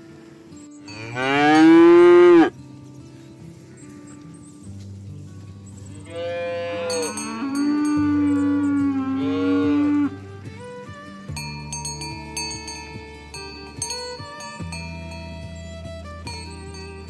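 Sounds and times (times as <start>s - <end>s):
cow mooing: 0.9s - 2.5s, 6.0s - 10.2s.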